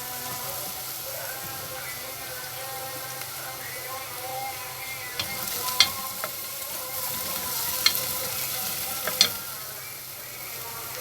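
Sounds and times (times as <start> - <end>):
onion and garlic sizzling in fat: 0.0 - 11.0
spoon clicking against pot: 5.2 - 6.4, 7.5 - 8.3, 9.0 - 9.4.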